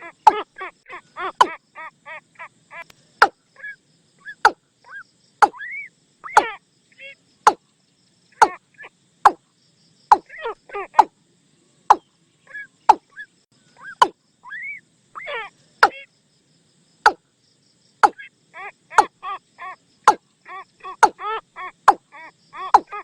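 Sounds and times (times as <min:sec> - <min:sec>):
clucking bird call notes: 0:00.0 - 0:07.6, 0:08.3 - 0:09.4, 0:10.1 - 0:11.1, 0:11.9 - 0:16.1, 0:18.0 - 0:23.0
bird decoy call knocks: 0:05.4 - 0:05.6, 0:22.7 - 0:23.0.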